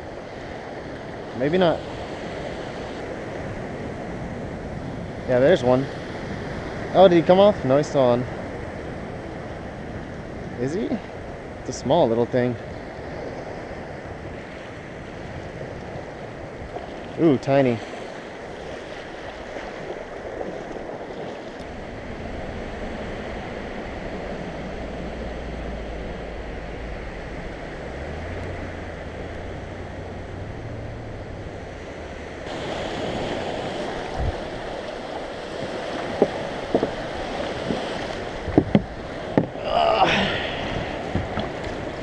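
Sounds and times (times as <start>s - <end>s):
surf washing on beach: 0.0s - 42.0s
wind on microphone: 12.5s - 42.0s
sharp clicks and knocks: 38.5s - 39.6s.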